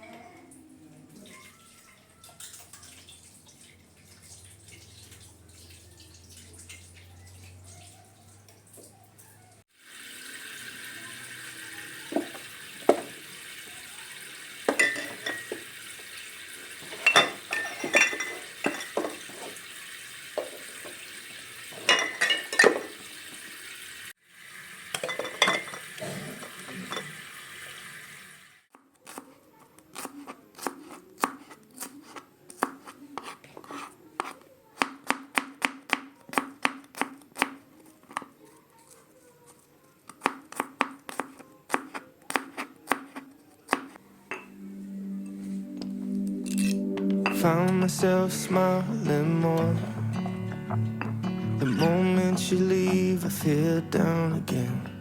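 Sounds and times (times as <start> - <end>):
kitchen tap running: 1.4 - 8.9, 9.8 - 28.6
dishes clinking in sink: 12.1 - 13.2, 14.6 - 15.8, 16.8 - 19.7, 20.4 - 21.1, 21.7 - 23.1, 24.9 - 27.2, 44.3 - 44.6
knife chopping on cutting board: 29.9 - 38.3, 40.2 - 44.0.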